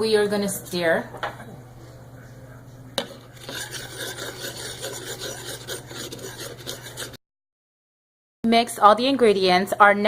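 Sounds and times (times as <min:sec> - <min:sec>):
utensil stirring liquid in a cup: 0:03.0 - 0:07.2.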